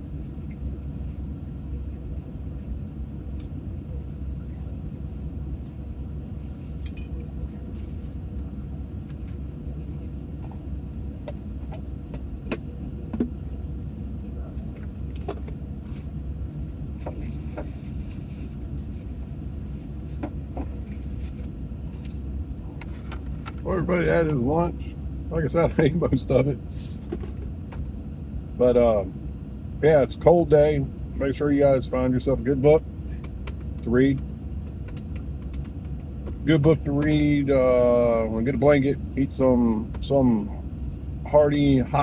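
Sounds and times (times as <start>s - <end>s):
steady low rumble: 0.0s - 42.0s
light clicks and clinks: 6.8s - 7.3s.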